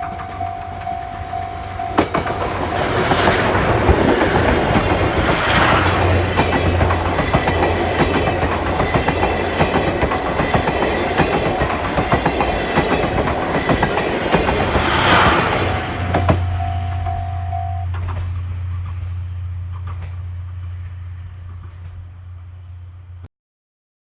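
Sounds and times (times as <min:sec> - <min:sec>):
wheels clicking over rail joints: 0:00.0 - 0:17.2, 0:17.8 - 0:22.2
train rolling past: 0:00.0 - 0:23.2.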